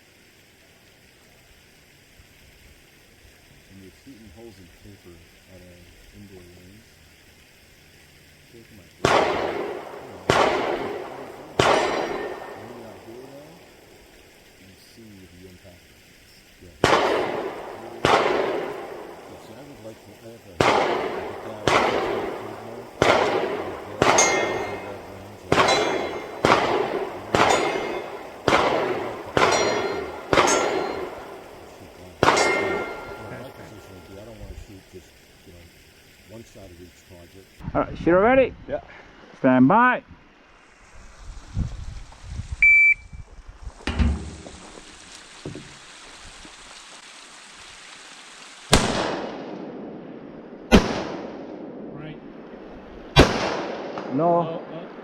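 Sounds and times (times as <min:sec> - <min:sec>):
gunshots: 0:09.0 - 0:13.9, 0:16.7 - 0:34.9, 0:48.7 - 0:52.4, 0:53.1 - 0:55.0
rifle shots with rolling echo: 0:09.0 - 0:14.4, 0:16.8 - 0:35.4, 0:48.7 - 0:55.0
bullets clanging on steel targets: 0:09.1 - 0:12.8, 0:23.0 - 0:31.4, 0:32.2 - 0:34.0.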